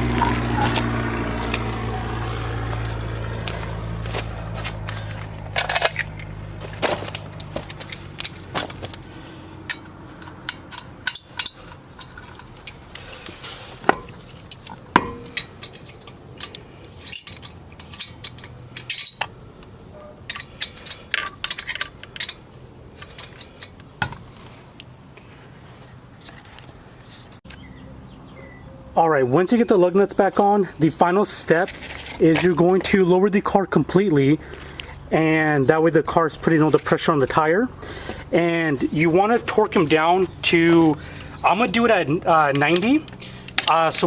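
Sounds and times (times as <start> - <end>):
metal lug nuts clinking: 0.0 - 1.9, 2.5 - 24.4, 38.0 - 44.0.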